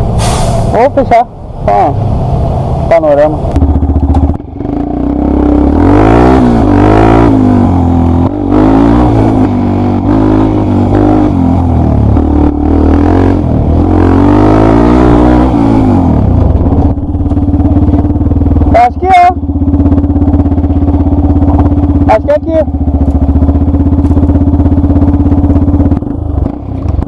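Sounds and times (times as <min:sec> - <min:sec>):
motorcycle engine revving: 0:01.8 - 0:27.0.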